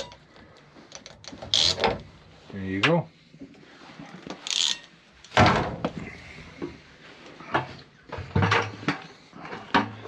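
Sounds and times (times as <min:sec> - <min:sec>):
knocks and clatters of tools: 0:00.0 - 0:02.1, 0:04.2 - 0:06.8, 0:07.4 - 0:10.0.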